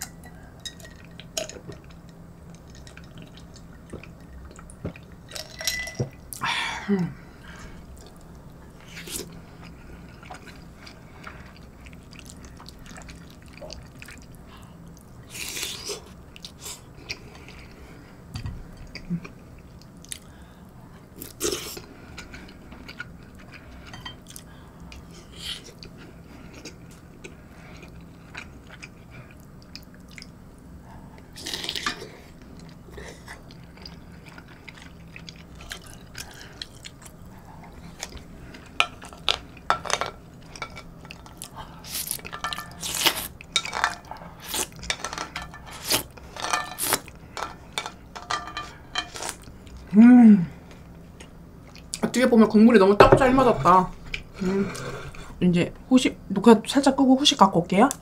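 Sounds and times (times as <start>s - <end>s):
person chewing: 7.9s - 17.8s, 18.8s - 20.4s, 21.2s - 47.8s, 50.7s - 52.0s.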